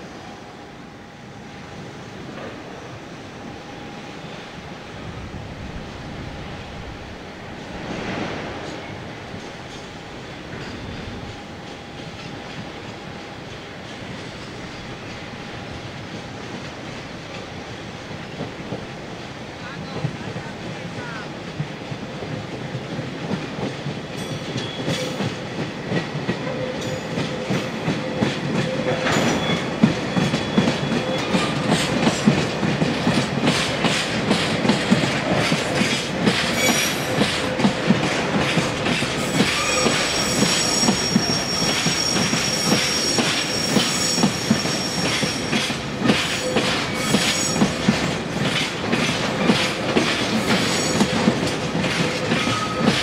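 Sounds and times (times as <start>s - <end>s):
train wheels clacking over rail joints: 19.9s - 53.0s
high wheel squeal: 28.0s - 31.8s, 36.5s - 37.2s, 39.1s - 47.8s, 52.3s - 53.0s.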